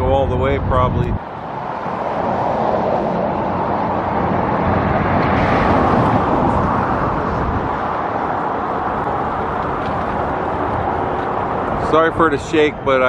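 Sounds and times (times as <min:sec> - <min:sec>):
road traffic: 0:00.0 - 0:13.0
vehicle passing: 0:01.1 - 0:13.0.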